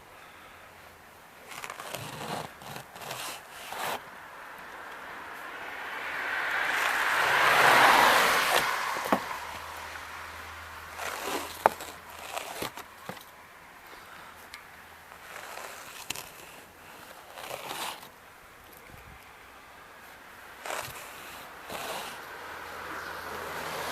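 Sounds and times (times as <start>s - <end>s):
snow scraped off a car: 1.4s - 4.1s, 6.4s - 10.0s, 10.8s - 13.3s, 15.1s - 18.2s, 20.6s - 23.9s.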